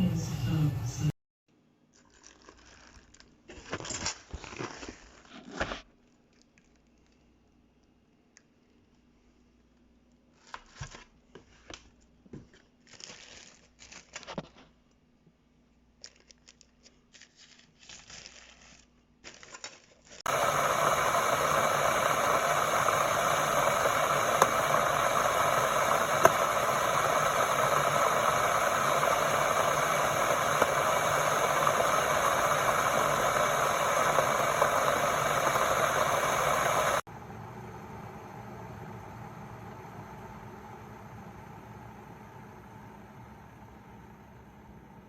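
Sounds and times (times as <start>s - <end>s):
faint crinkling and clicks: 1.9s - 3.7s, 6.0s - 9.0s, 16.0s - 20.2s
kettle water boiling: 20.3s - 45.0s.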